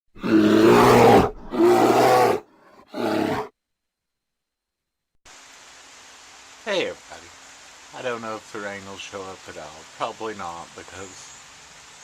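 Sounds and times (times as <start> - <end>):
loud roars: 0.2 - 3.5.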